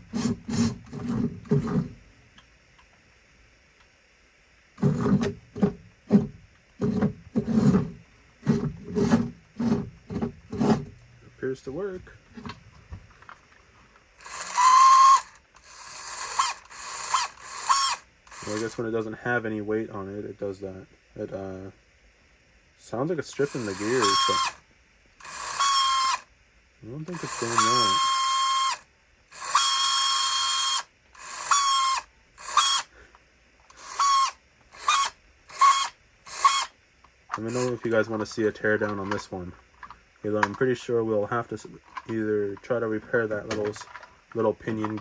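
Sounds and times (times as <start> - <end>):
toy motor whirring: 0.0 - 1.9, 14.2 - 18.8, 23.3 - 24.6, 25.2 - 26.3, 27.0 - 32.9, 33.7 - 38.1
gears ratcheting grind: 0.0 - 2.0, 14.2 - 18.9, 23.3 - 24.6, 25.2 - 26.3, 27.1 - 32.9, 33.7 - 36.7, 37.3 - 40.6.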